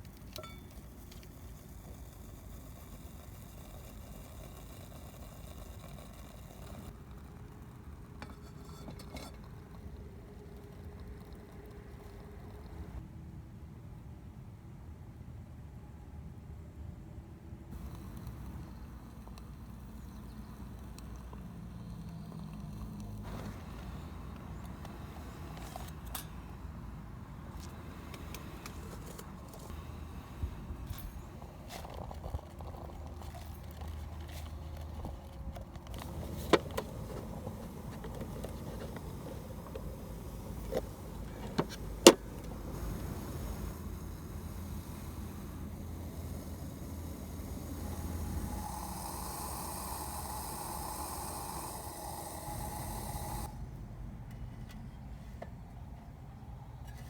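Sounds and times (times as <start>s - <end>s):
low engine rumble: 17.8s - 57.0s.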